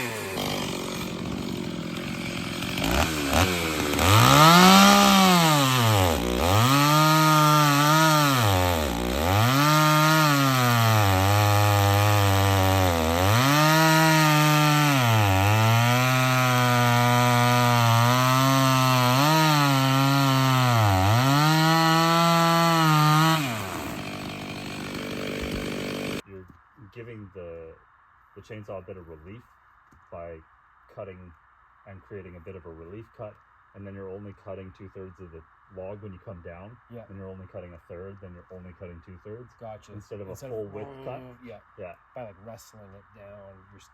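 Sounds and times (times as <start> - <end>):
chainsaw cutting through log: 0.0 - 26.2.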